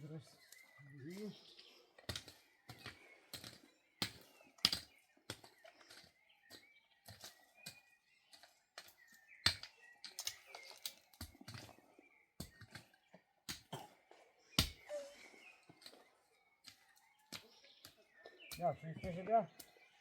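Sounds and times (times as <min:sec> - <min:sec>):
faint high chirps: 0:14.1 - 0:20.0.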